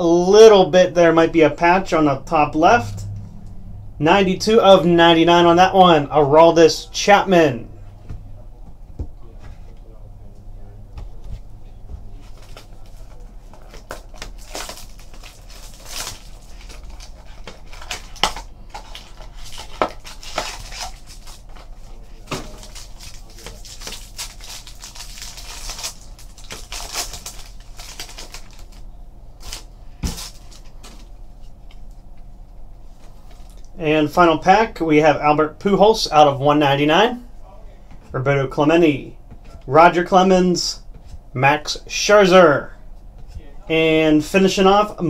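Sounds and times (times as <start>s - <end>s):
packaging crinkling: 12.2s - 31.8s.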